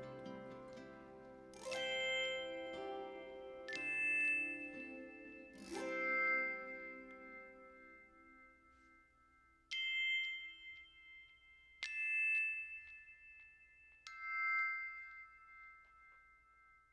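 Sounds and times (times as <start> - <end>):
low music tones: 0.0 - 8.8
chime-like bell notes: 0.0 - 16.9.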